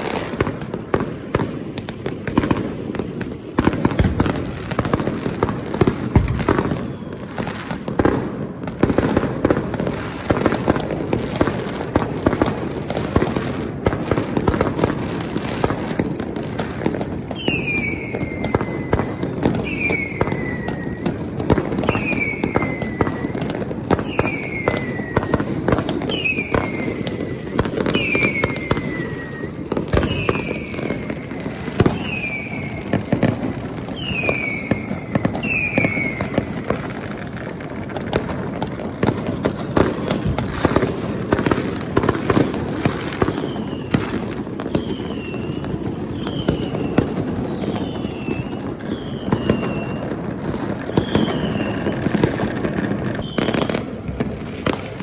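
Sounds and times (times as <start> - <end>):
firecrackers cracking and popping: 0.0 - 55.0.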